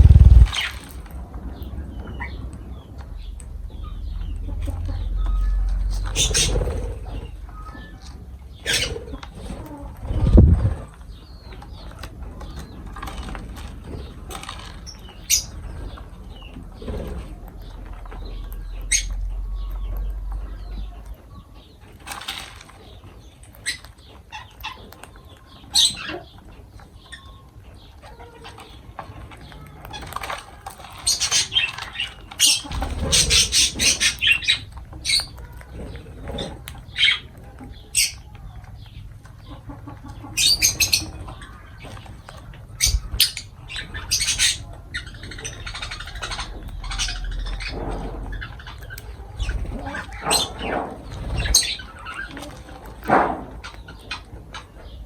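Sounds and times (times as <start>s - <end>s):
low rumbling: 0.0s - 0.8s, 1.4s - 7.7s, 9.9s - 11.2s, 15.5s - 21.7s
lovebirds chirping and squawking: 0.0s - 55.0s.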